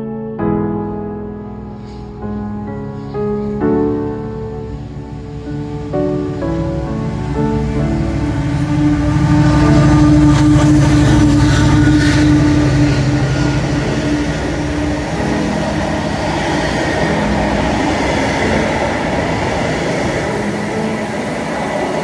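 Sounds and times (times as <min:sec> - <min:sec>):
train wheel and rail noise: 0:01.8 - 0:22.0
locomotive engine drone: 0:02.7 - 0:22.0.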